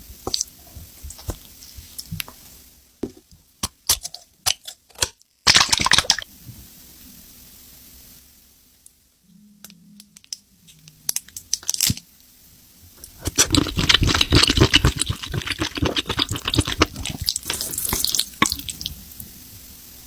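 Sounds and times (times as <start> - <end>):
wet mouth clicks: 13.0 - 18.9
wet chewing and squelching: 13.0 - 19.0.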